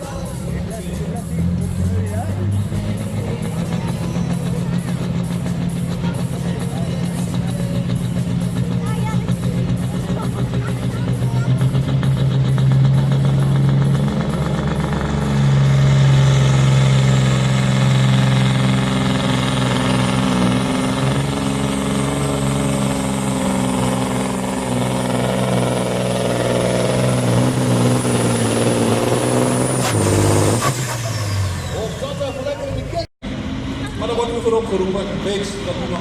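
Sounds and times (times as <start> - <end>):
diesel engine running hard: 0.0 - 36.0.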